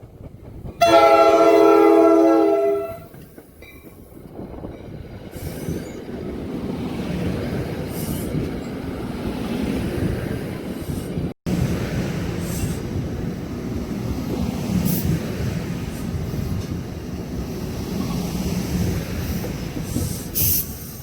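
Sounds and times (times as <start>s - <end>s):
train rumbling on rails: 0.0s - 21.0s
train horn: 0.8s - 3.1s.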